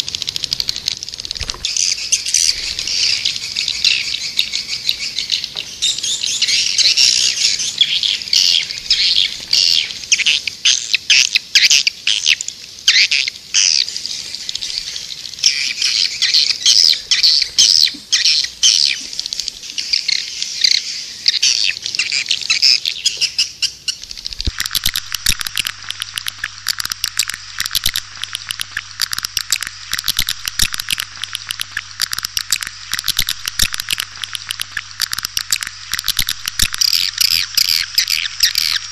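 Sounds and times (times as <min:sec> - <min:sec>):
fast ticking chirr: 0:00.0 - 0:05.2, 0:14.6 - 0:20.3, 0:23.8 - 0:38.9
high twittering bird chirps: 0:01.4 - 0:12.2, 0:12.9 - 0:38.9
low hum: 0:24.2 - 0:38.9.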